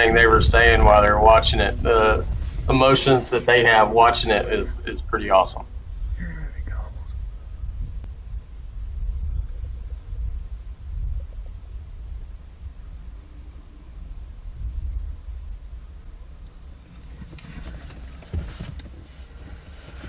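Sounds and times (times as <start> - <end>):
gusty wind on microphone: 0.0 - 20.0
high-pitched insect trill: 2.8 - 17.2.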